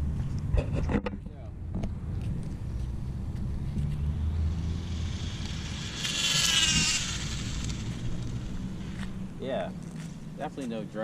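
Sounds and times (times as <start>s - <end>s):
rc car high whine passing: 2.1s - 10.4s.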